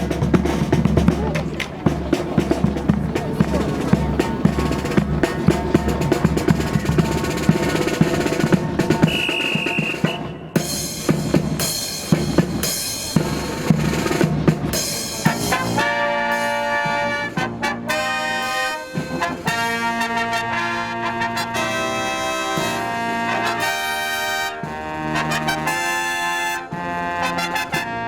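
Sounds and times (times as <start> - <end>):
bass drum: 0.0 - 15.8
snare drum roll: 0.0 - 28.0
brass fanfare: 3.6 - 12.4, 15.0 - 28.0
high whistle tone: 9.0 - 10.6.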